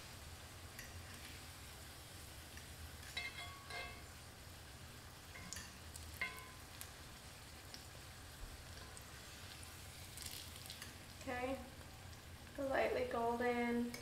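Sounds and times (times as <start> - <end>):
food sizzling in oil: 0.0 - 14.0
metal fork clinking on pan: 0.8 - 1.0, 3.0 - 4.1, 5.3 - 6.6.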